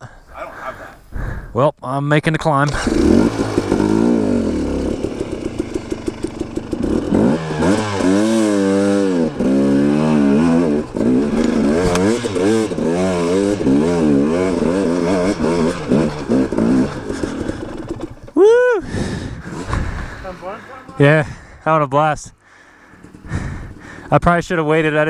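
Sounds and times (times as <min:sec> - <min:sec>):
dirt bike engine revving: 0:02.6 - 0:21.6, 0:22.5 - 0:25.0.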